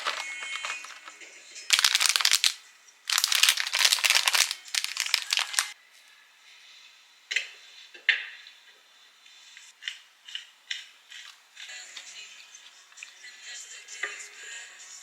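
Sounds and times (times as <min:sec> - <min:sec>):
crinkling and rustling: 0:00.0 - 0:05.8.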